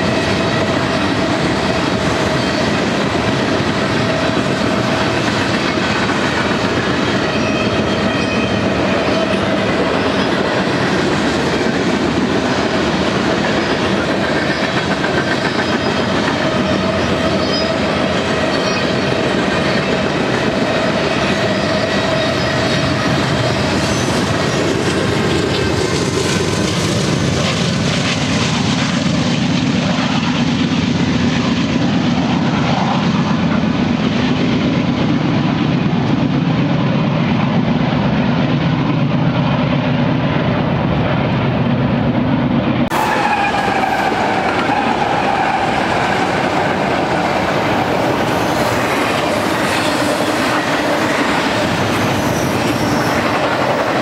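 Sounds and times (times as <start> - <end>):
freight train wheels rumbling: 0.0 - 54.0
thin wheel squeal: 17.3 - 17.8.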